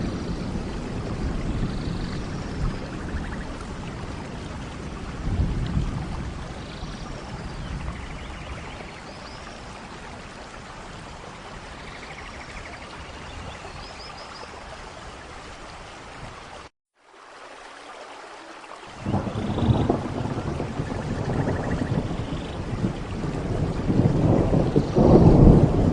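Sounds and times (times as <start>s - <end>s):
low thunder rumble: 0.0s - 10.2s, 19.0s - 25.9s
steady rain: 0.0s - 25.9s.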